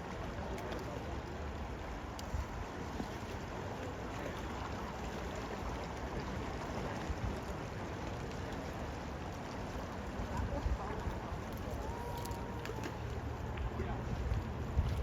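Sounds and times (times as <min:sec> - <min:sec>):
river flowing: 0:00.0 - 0:15.0
low wind rumble: 0:10.0 - 0:15.0.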